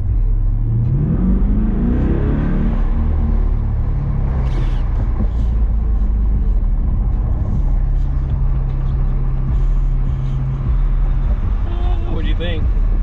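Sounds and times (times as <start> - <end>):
car engine cruising: 0.0 - 13.0
road noise: 0.0 - 13.0
wind: 0.0 - 13.0.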